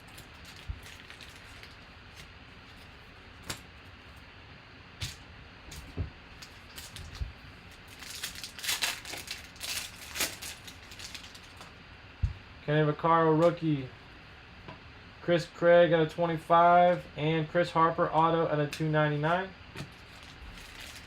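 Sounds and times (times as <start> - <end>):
wrapper crinkling and tearing: 0.0 - 2.9, 6.4 - 11.7, 19.8 - 21.0.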